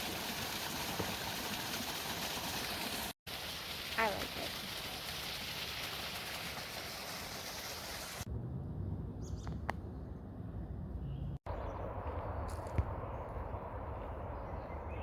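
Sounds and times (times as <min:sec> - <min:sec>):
low rumble: 0:08.3 - 0:15.0.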